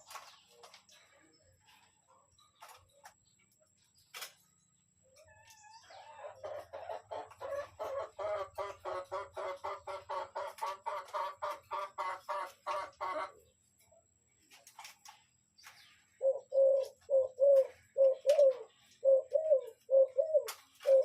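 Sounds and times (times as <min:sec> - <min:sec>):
bird calling: 0:15.6 - 0:21.0.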